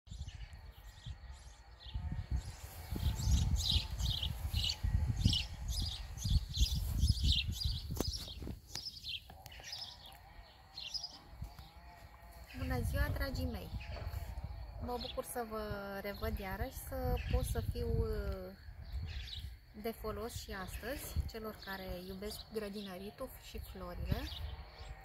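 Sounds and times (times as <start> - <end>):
low microphone rumble: 0.1 - 8.6
bird chirping: 0.1 - 12.0.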